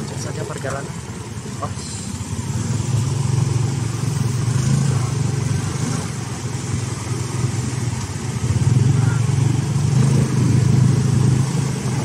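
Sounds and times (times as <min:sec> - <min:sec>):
traffic noise: 0:00.0 - 0:12.0
vehicle engine drone: 0:00.0 - 0:12.0.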